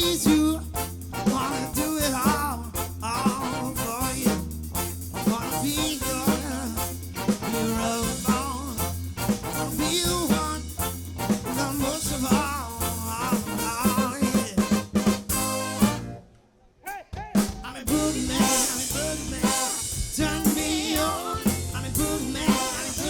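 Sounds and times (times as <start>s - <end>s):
live band playing swing groove: 0.0s - 16.2s, 17.4s - 23.0s
drum hits: 7.2s - 16.1s, 17.2s - 23.0s.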